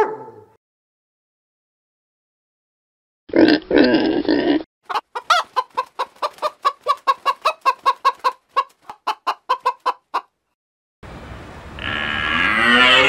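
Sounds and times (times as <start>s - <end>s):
chicken clucking: 4.9s - 10.4s
deep animal sound: 11.8s - 13.0s.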